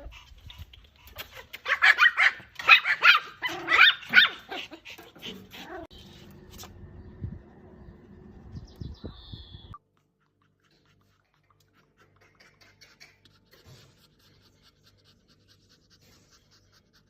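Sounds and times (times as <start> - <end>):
dog vocalizing: 9.9 - 17.0.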